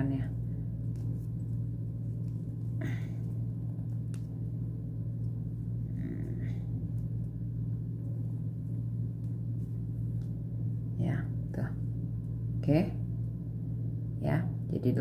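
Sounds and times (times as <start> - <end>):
yarn and crochet hook rustling: 0.0 - 10.4
steady low hum: 0.0 - 15.0.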